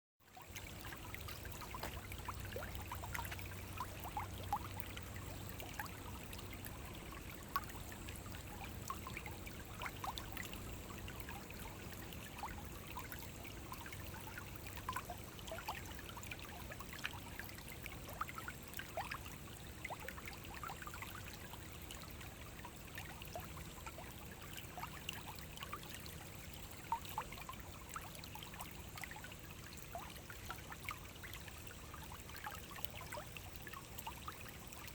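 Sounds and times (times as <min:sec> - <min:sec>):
stream flowing over rocks: 0:00.4 - 0:18.7.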